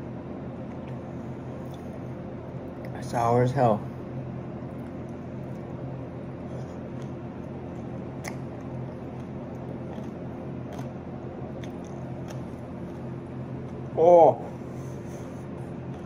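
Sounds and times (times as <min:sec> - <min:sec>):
steady low hum: 0:00.0 - 0:16.0
man chewing wetly: 0:00.6 - 0:03.0, 0:04.6 - 0:14.0, 0:14.9 - 0:16.0.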